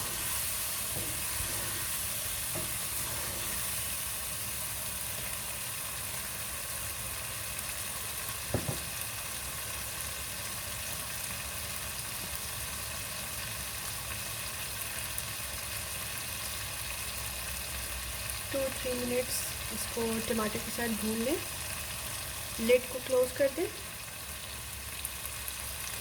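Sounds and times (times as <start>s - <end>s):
spices sizzling in oil: 0.0s - 26.0s
sharp knocks: 8.6s - 8.9s.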